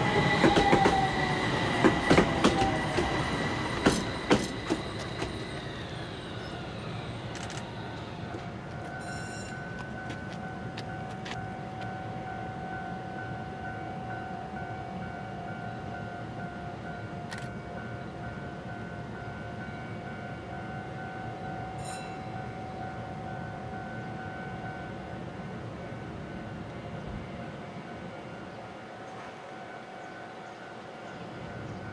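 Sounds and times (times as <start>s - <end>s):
high whine: 0.0s - 12.2s
tram rumbling: 0.0s - 31.9s.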